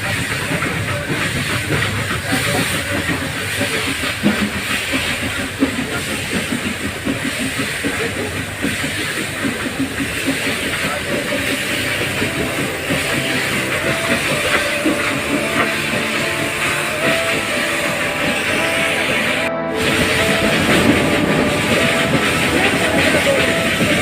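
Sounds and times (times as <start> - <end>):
clatter of train wheels: 0.0 - 24.0
train hissing: 0.0 - 24.0.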